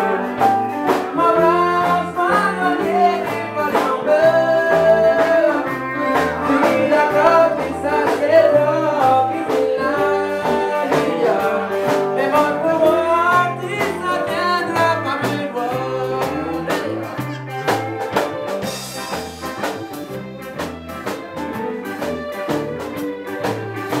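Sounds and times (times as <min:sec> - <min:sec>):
person singing: 0:00.0 - 0:22.4
live cajun band: 0:00.0 - 0:24.0.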